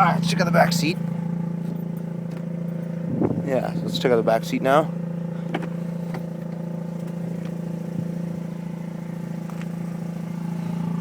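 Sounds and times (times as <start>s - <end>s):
rotary engine idling: 0.0s - 11.0s.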